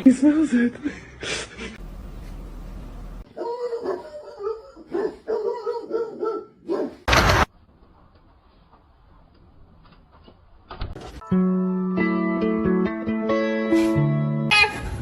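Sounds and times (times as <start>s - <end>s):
dog whining yips: 3.4s - 7.0s.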